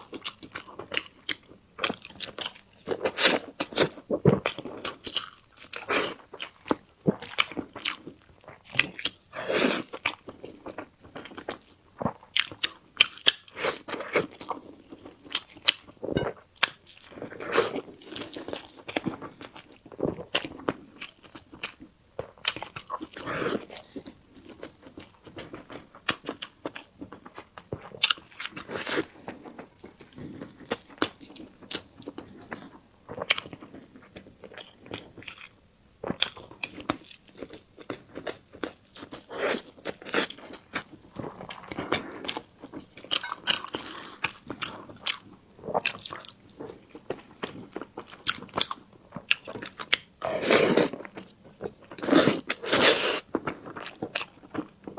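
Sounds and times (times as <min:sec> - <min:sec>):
person chewing food: 0:00.0 - 0:54.9.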